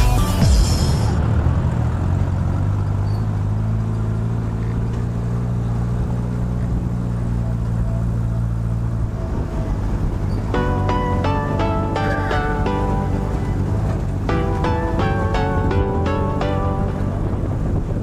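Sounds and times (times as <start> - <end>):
vehicle engine running: 0.0 - 18.0
plucked musical notes: 10.5 - 18.0.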